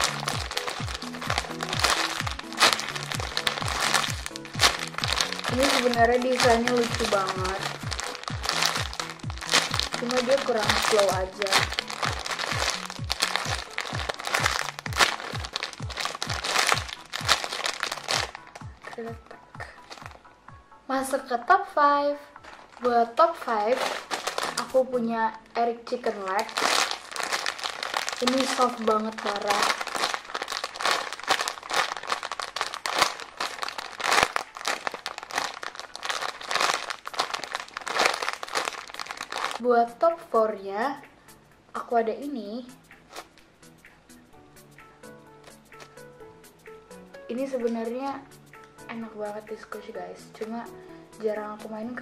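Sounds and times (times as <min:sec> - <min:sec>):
foam toy crinkling squeezes: 0:00.0 - 0:19.0, 0:19.6 - 0:20.2, 0:22.4 - 0:24.8, 0:26.2 - 0:39.6, 0:43.1 - 0:43.4, 0:45.4 - 0:46.0.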